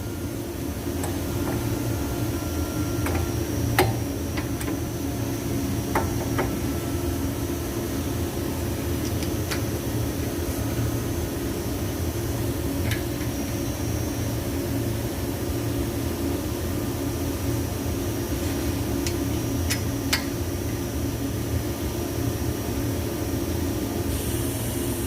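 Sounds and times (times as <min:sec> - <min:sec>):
faint high whine: 0:00.0 - 0:03.6
low mechanical hum: 0:00.0 - 0:25.0.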